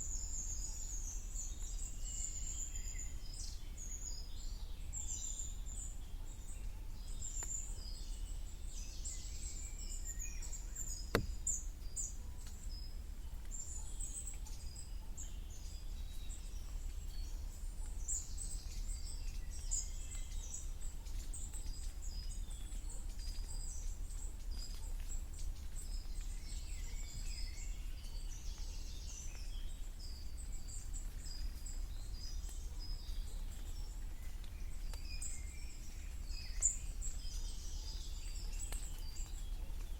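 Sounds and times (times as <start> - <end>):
sharp tap: 11.1 - 11.4.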